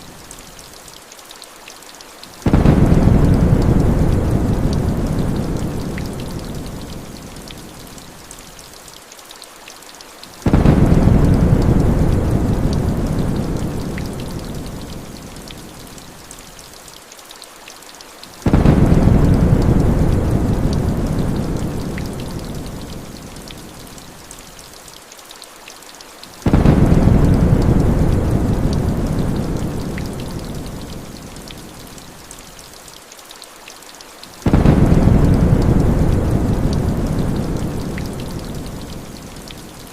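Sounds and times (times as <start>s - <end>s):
heavy rain falling: 0.0s - 39.9s
thunder rumbling: 2.4s - 7.0s, 10.5s - 14.9s, 18.5s - 22.9s, 26.4s - 31.1s, 34.4s - 39.1s.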